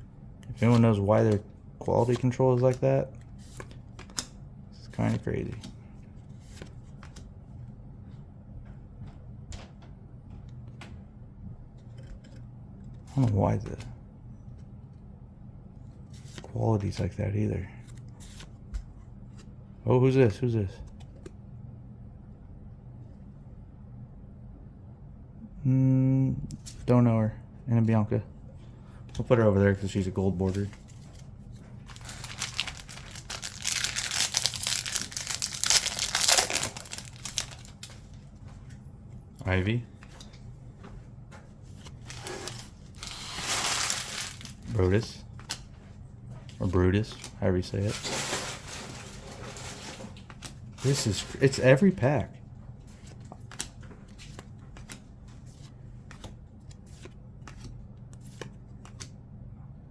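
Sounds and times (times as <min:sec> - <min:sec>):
cards clicking and rustling: 0:00.5 - 0:04.4, 0:05.0 - 0:05.8, 0:06.4 - 0:07.2, 0:29.8 - 0:38.3, 0:41.8 - 0:45.8, 0:46.5 - 0:52.2, 0:52.9 - 0:59.1
plastic wrapper crinkling: 0:31.9 - 0:38.2, 0:42.0 - 0:45.1, 0:47.9 - 0:51.6.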